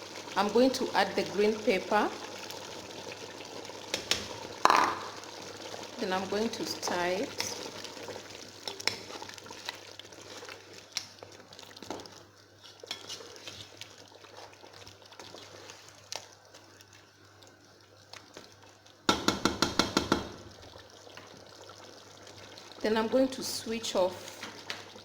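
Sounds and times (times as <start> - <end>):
spoon stirring stew in pot: 2.2 - 5.9, 6.5 - 16.8.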